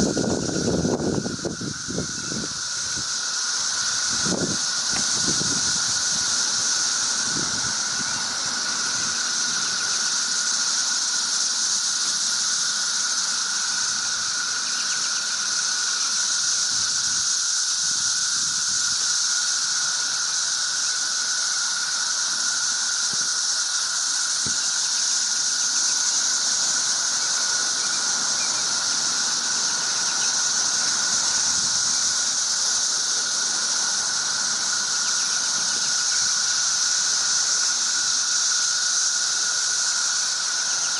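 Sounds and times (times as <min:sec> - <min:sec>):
cicadas chorus: 0:00.0 - 0:40.9.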